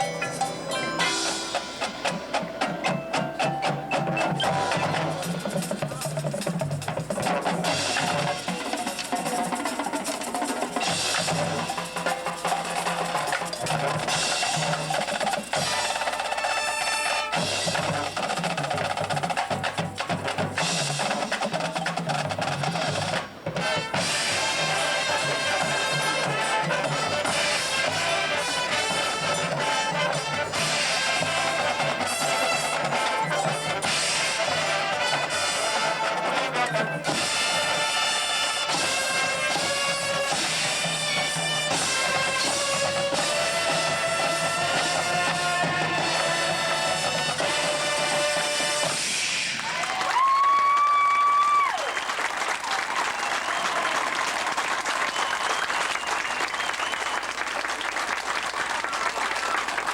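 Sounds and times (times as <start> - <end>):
brass horns: 0.0 - 50.2
snare drums: 0.0 - 59.9.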